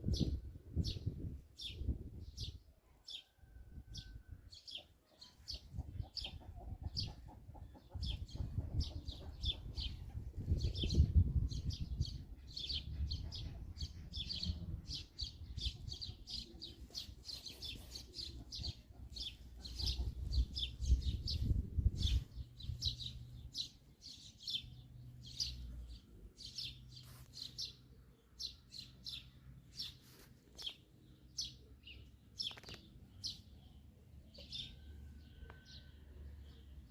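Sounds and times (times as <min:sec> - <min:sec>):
birds chirping: 0:12.0 - 0:36.9.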